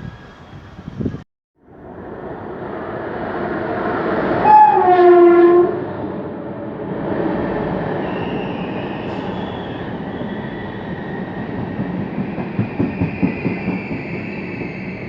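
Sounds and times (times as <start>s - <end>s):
train rumbling on rails: 0.0s - 15.0s
high drawn-out wheel squeal: 7.8s - 11.6s, 12.2s - 15.0s.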